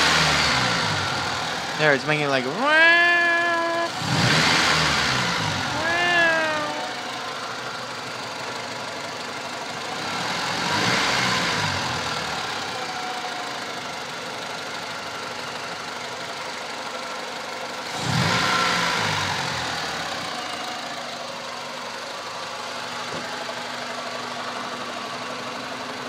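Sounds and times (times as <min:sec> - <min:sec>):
engine revving: 0:00.0 - 0:01.8, 0:03.9 - 0:05.7, 0:09.8 - 0:12.7, 0:17.8 - 0:20.1
car engine idling with whine: 0:00.0 - 0:02.6, 0:03.9 - 0:05.8, 0:06.8 - 0:26.0.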